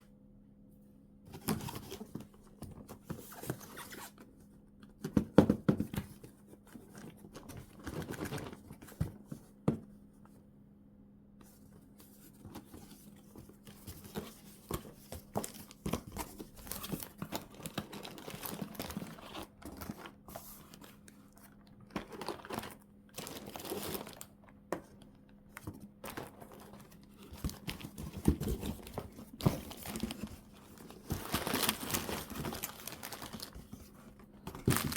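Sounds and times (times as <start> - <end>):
plastic packaging crinkling and tearing: 15.3 - 24.4, 26.0 - 34.9.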